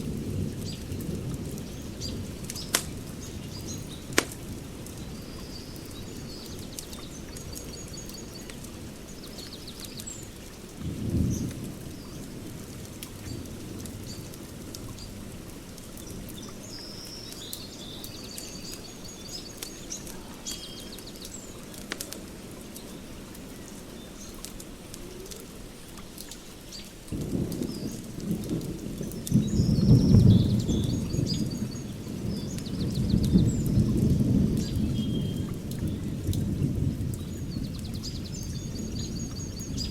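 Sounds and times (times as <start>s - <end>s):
fire crackling and popping: 0.0s - 5.2s, 5.8s - 29.7s
songbirds chirping: 0.0s - 39.9s.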